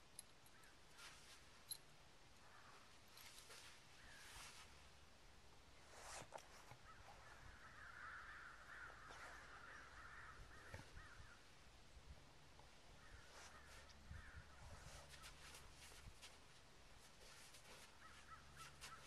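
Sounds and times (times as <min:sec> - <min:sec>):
faint bird calls: 0:02.4 - 0:04.8, 0:06.7 - 0:11.5, 0:12.9 - 0:15.7, 0:17.7 - 0:19.0.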